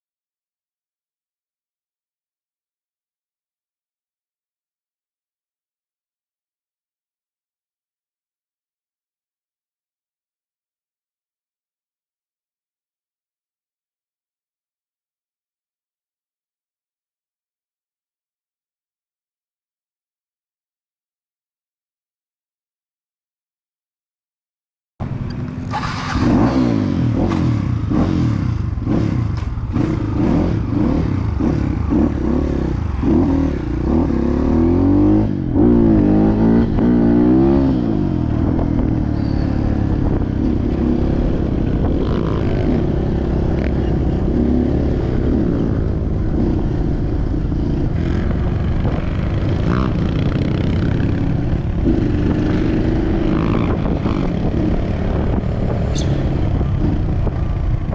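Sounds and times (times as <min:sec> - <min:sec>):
motorcycle engine revving: 0:25.0 - 0:57.9.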